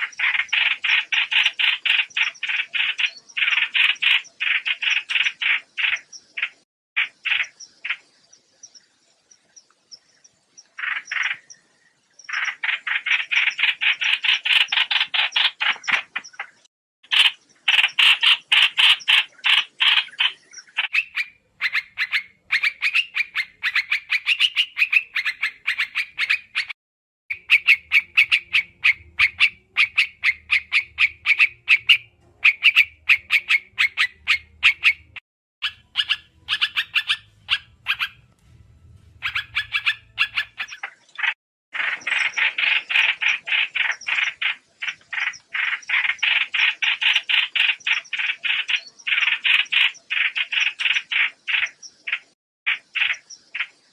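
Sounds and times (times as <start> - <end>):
bird chattering calls: 0.0 - 8.1, 10.7 - 11.6, 12.3 - 38.3, 39.1 - 53.8.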